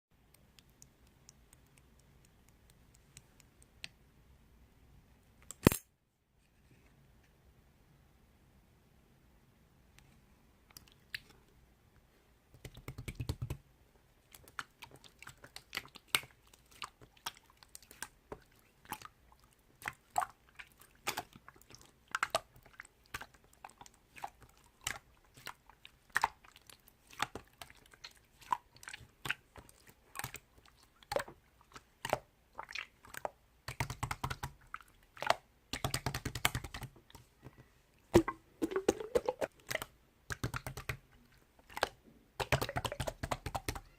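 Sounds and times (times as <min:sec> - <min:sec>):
slime squishing with sticky clicks: 0:00.2 - 0:04.0, 0:14.3 - 0:37.3, 0:38.1 - 0:43.9.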